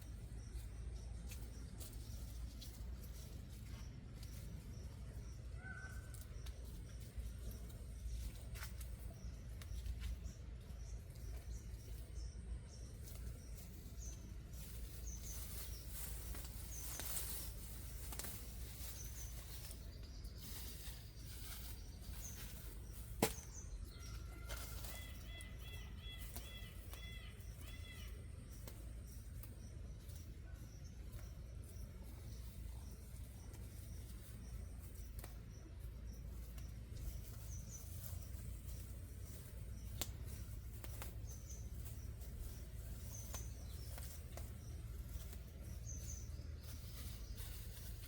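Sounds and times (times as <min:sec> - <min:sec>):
small birds chirping: 0:00.0 - 0:48.0
steady low rumble: 0:00.0 - 0:48.0.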